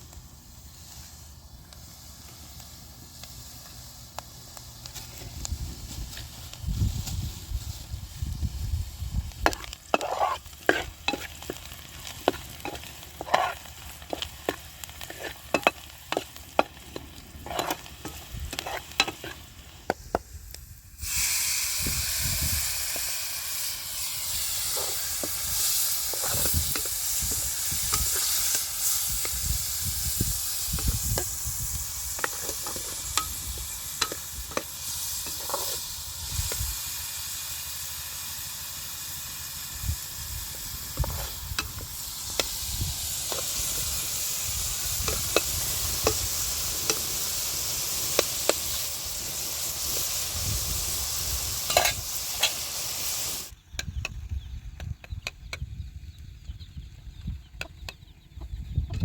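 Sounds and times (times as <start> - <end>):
food sizzling in hot oil: 0.0 - 53.6
utensil scraping cooking pot: 9.4 - 19.5, 24.3 - 29.1, 30.4 - 35.9, 51.6 - 52.6.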